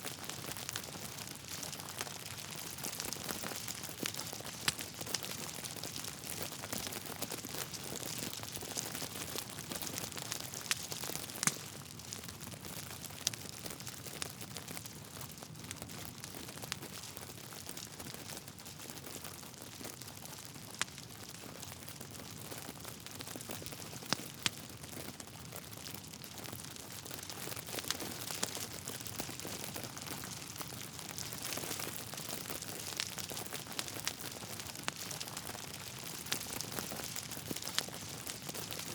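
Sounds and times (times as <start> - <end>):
wood fire crackling: 0.0 - 38.9
sharp pops from burning logs: 0.2 - 11.9, 20.8 - 21.0, 23.4 - 24.7, 26.7 - 38.9.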